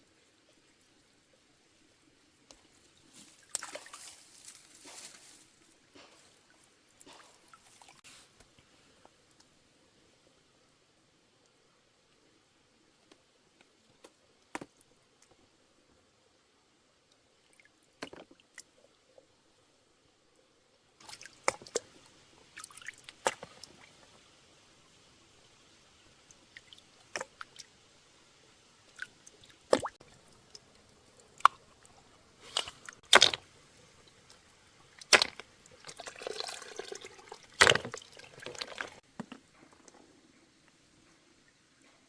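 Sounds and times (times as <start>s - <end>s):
water splashes and drips: 2.3s - 8.6s, 21.0s - 39.1s.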